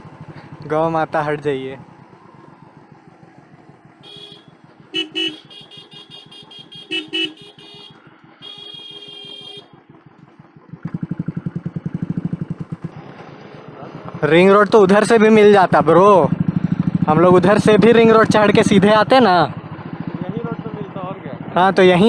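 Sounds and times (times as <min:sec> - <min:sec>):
single-cylinder motorcycle engine: 0:00.0 - 0:22.0
motorcycle horn honking: 0:04.0 - 0:10.0.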